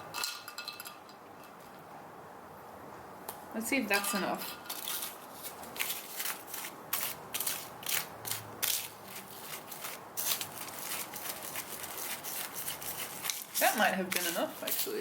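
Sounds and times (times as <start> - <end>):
utensil scraping in small container: 4.1 - 15.0.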